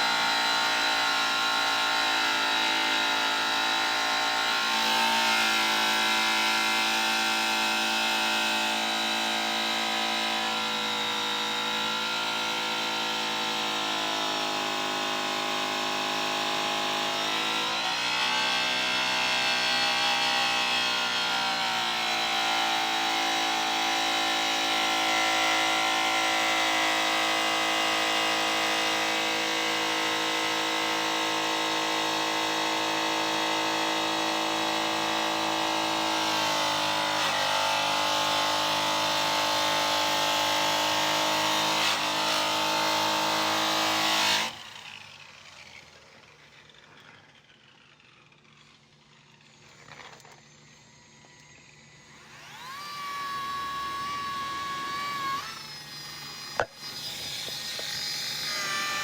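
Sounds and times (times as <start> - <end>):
electric polisher whining: 0.0 - 59.0.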